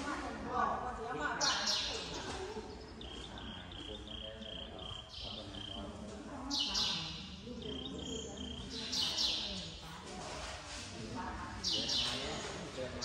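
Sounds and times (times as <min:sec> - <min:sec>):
murmur of voices: 0:00.0 - 0:13.0
small bird chirping: 0:01.4 - 0:09.9, 0:11.6 - 0:12.5.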